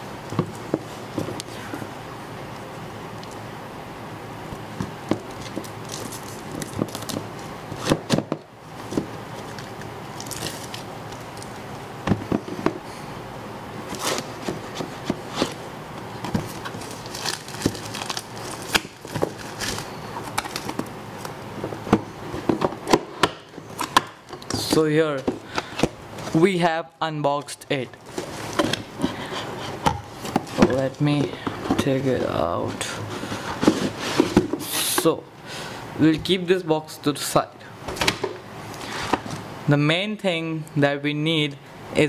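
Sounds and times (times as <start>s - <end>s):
cardboard crinkling and tearing: 5.3s - 8.1s, 8.8s - 11.6s, 16.2s - 21.3s, 30.2s - 32.4s.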